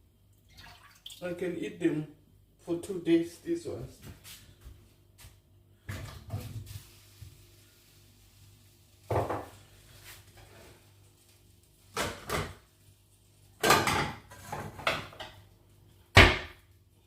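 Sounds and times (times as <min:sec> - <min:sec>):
dishes and utensils clattering: 0:13.6 - 0:15.4.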